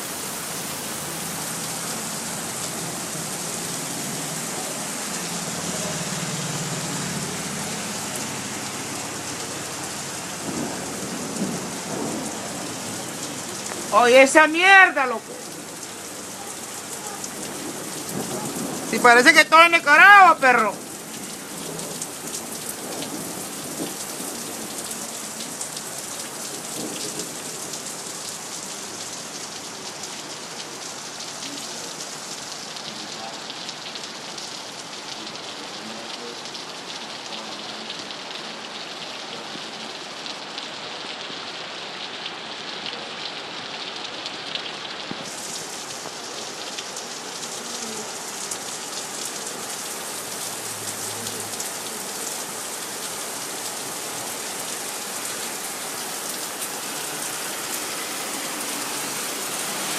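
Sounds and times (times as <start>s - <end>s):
heavy rain patter: 0.0s - 59.9s.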